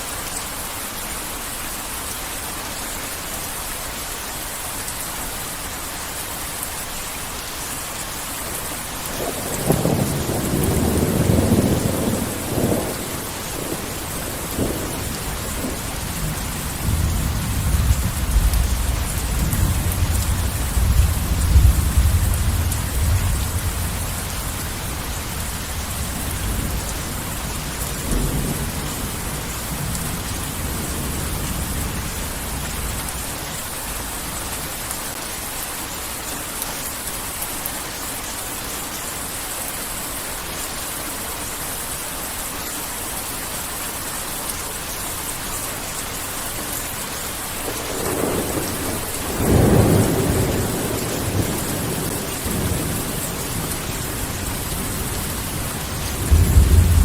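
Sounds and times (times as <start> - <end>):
heavy rain falling: 0.0 - 57.0
thunder rumbling: 9.1 - 33.3, 47.6 - 57.0.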